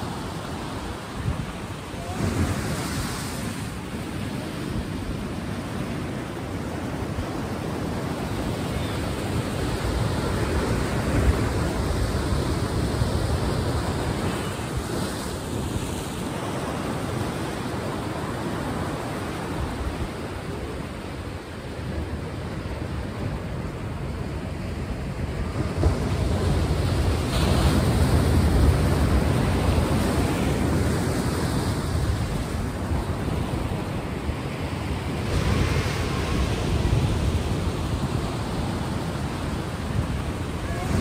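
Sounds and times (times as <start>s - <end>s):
ocean waves breaking: 0.0s - 41.0s.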